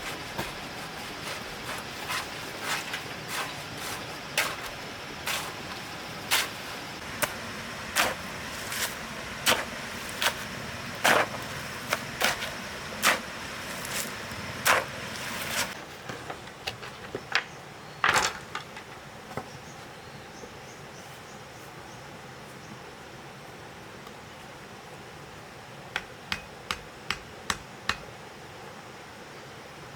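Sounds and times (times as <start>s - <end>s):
steady hiss: 0.0s - 15.8s.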